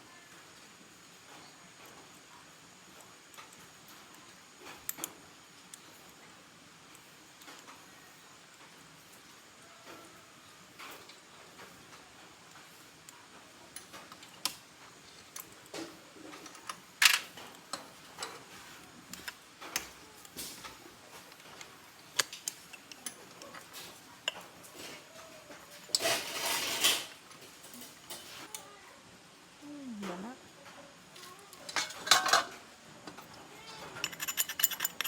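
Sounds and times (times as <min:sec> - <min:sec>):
hand tools clinking on metal: 0:31.6 - 0:32.6, 0:33.2 - 0:35.0
rattling clatter: 0:34.0 - 0:35.0.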